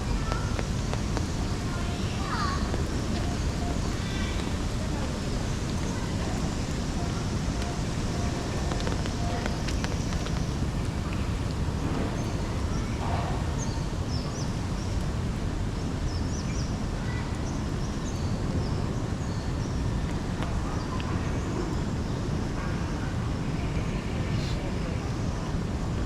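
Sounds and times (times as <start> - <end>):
birds chirping: 0.0 - 15.0
city rumble: 0.0 - 26.0.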